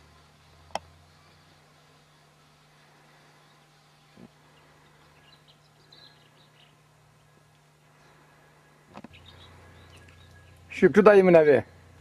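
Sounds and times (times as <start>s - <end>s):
low steady hum: 0.0s - 12.0s
bird chirps: 3.4s - 8.3s, 9.1s - 10.9s.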